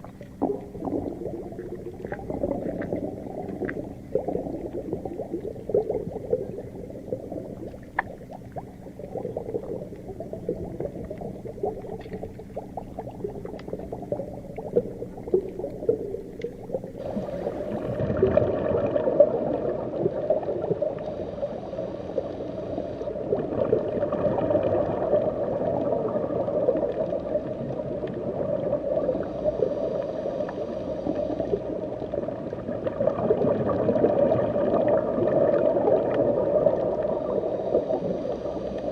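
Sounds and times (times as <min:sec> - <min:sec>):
faint crackles: 0:00.0 - 0:38.9
muffled underwater rumble: 0:00.0 - 0:38.9
underwater bubbling: 0:00.0 - 0:38.9.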